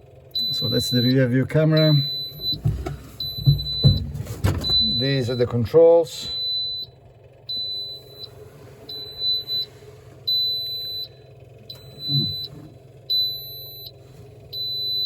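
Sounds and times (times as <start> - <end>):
warning buzzer beeping: 0.4 - 5.6, 10.3 - 13.9.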